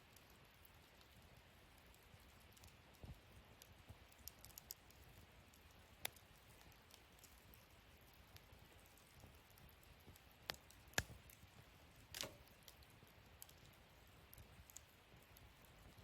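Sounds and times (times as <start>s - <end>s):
wood fire crackling: 0.0s - 16.0s
fire popping sharply: 12.1s - 12.6s.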